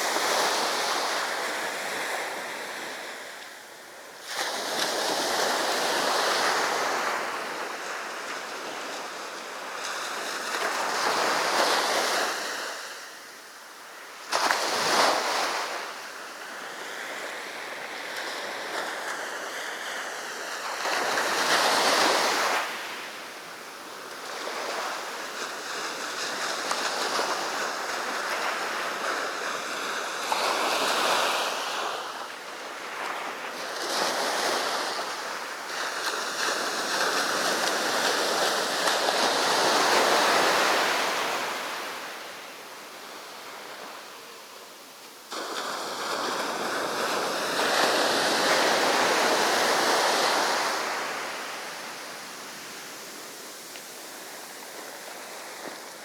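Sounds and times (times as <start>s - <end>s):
sea waves breaking on beach: 0.0s - 56.0s.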